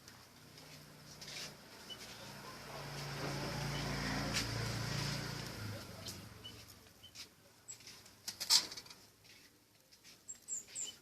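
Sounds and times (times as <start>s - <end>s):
wing flutters and rustles: 0.0s - 11.0s
bird chirping: 1.3s - 4.1s, 5.8s - 8.0s, 10.0s - 11.0s.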